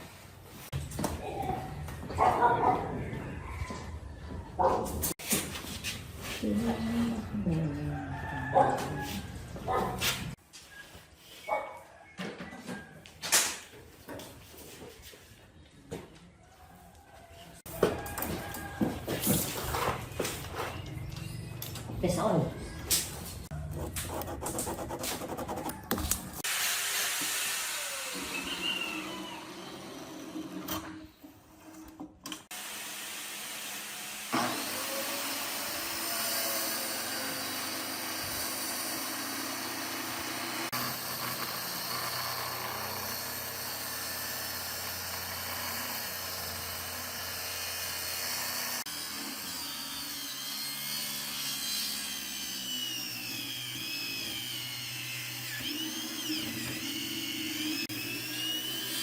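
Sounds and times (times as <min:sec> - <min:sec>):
woodworking power tools running: 0:26.0 - 0:31.4, 0:32.5 - 0:59.0.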